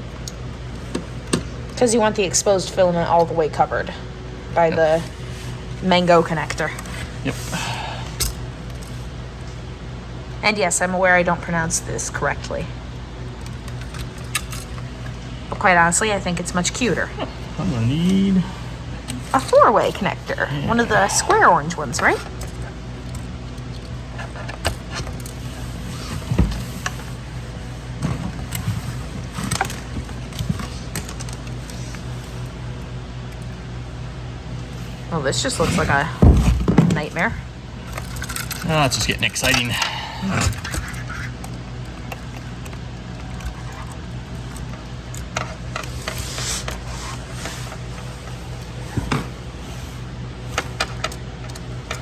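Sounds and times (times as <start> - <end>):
steady low hum: 0.0 - 52.0
wires and plastic connectors clicking: 13.2 - 15.2, 37.8 - 48.8.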